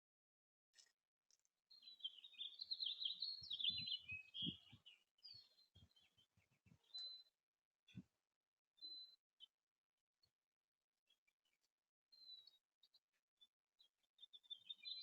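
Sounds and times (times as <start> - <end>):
songbird warbling song: 1.7 - 8.0, 8.8 - 9.6, 11.1 - 15.0.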